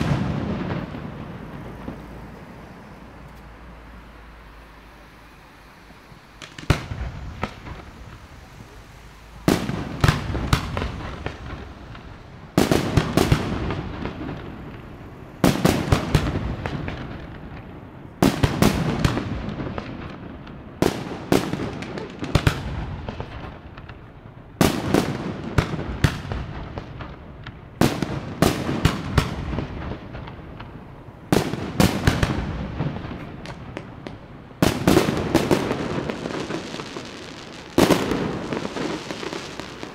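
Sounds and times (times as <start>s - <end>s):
fireworks bursting: 0.0s - 39.9s
fireworks rumble: 0.0s - 39.9s.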